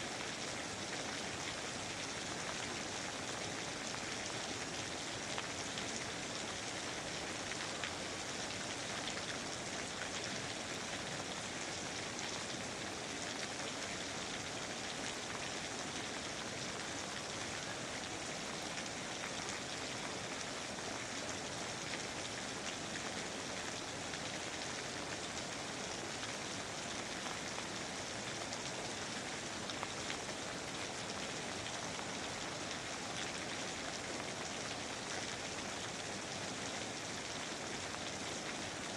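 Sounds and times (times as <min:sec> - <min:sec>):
steady rain hissing: 0:00.0 - 0:38.9.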